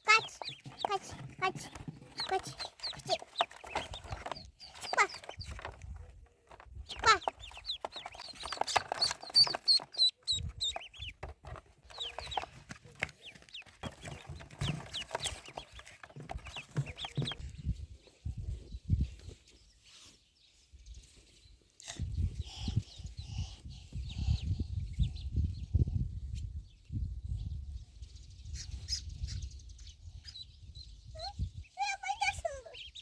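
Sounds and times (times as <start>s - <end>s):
poultry clucking: 0.0s - 17.4s
chicks peeping: 0.0s - 21.3s, 21.9s - 33.0s.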